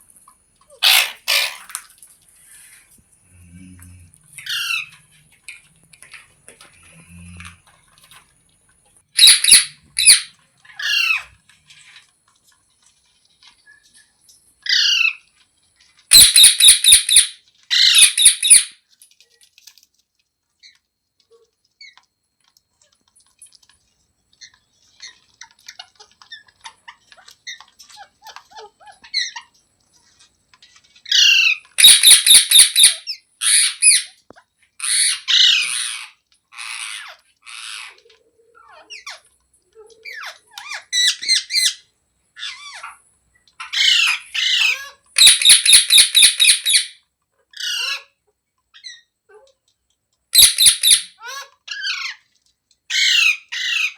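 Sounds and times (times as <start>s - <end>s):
parrot squawking: 0.7s - 1.8s, 4.4s - 5.1s, 9.2s - 11.3s, 14.7s - 15.2s, 16.1s - 18.7s, 31.0s - 34.2s, 34.8s - 43.0s, 43.6s - 47.0s, 47.6s - 48.2s, 50.4s - 52.3s, 52.9s - 53.9s.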